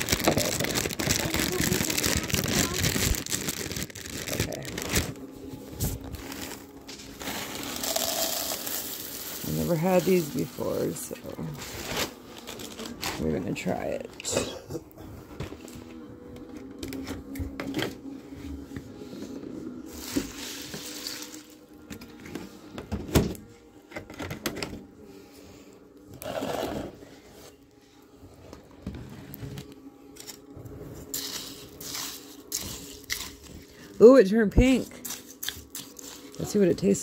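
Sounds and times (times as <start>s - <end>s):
cereal pouring rustle: 0.0s - 5.1s, 6.2s - 12.9s, 19.9s - 21.6s, 31.1s - 33.5s.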